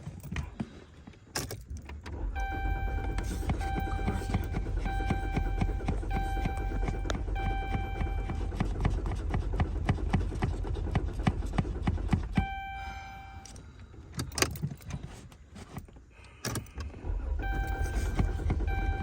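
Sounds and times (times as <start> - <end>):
car engine cranking on starter: 1.9 - 15.0, 16.2 - 19.0
electronic warning tone: 2.4 - 8.5, 12.4 - 13.5, 17.4 - 19.0.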